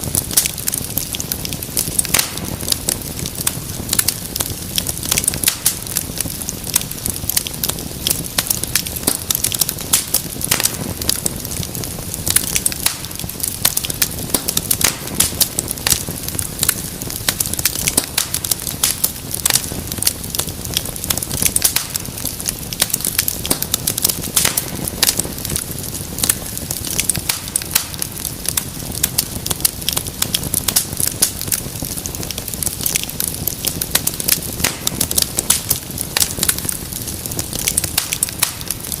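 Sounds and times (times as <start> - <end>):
hiss of flames: 0.0 - 39.0
wood fire crackling: 0.0 - 39.0.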